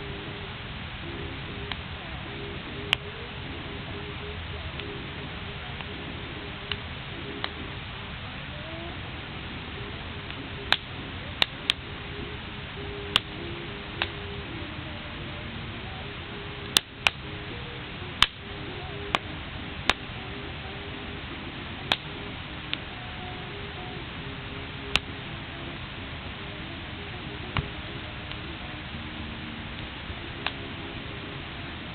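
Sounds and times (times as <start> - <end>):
wood fire crackling: 0.0 - 31.9
sharp pops from burning logs: 10.7 - 11.8, 13.1 - 13.3, 16.7 - 17.2, 18.2 - 18.4, 19.1 - 20.1, 21.9 - 22.1.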